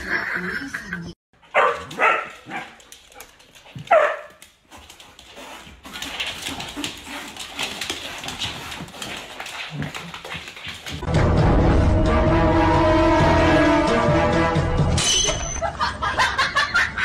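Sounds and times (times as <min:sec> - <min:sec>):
dog yelp: 0:01.5 - 0:02.8, 0:03.9 - 0:04.3.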